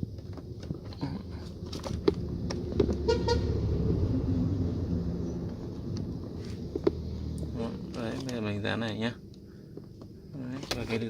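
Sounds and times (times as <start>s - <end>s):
vehicle engine humming: 0.0s - 11.0s
car horn beeps: 3.0s - 3.6s.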